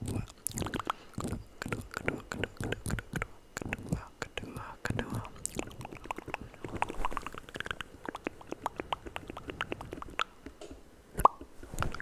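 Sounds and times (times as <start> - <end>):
lip smacks: 0.0 - 12.0
tongue pops: 0.0 - 12.0
wet mouth clicks: 0.0 - 12.0.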